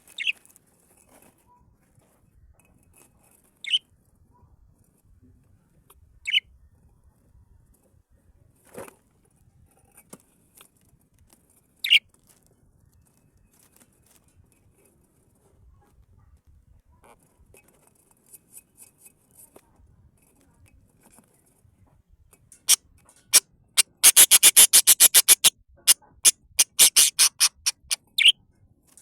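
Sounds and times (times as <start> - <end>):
soft rustle: 0.0 - 5.9, 6.8 - 22.6
birds giving sharp calls: 0.1 - 0.4, 23.3 - 25.5, 26.6 - 28.3.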